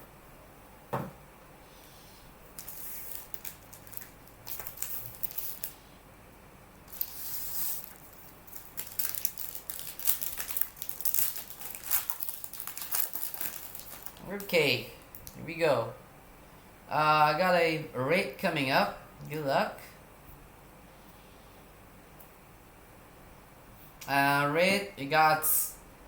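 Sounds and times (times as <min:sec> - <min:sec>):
light knock: 0:00.9 - 0:01.2
card wrapper crinkling: 0:02.6 - 0:05.8, 0:06.9 - 0:14.5.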